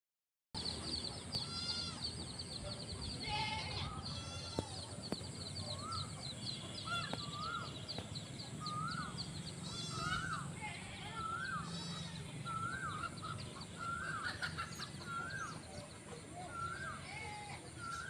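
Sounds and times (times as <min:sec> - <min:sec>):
small birds chirping rapidly: 0:00.6 - 0:18.0
harsh bird call: 0:05.6 - 0:15.6
rising-and-falling bird calls: 0:05.6 - 0:18.0.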